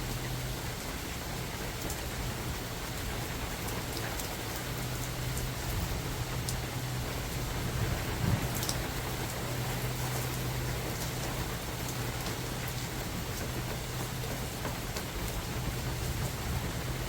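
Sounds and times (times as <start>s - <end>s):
rain hissing: 0.0s - 17.0s
raindrops striking sharply: 0.0s - 17.0s.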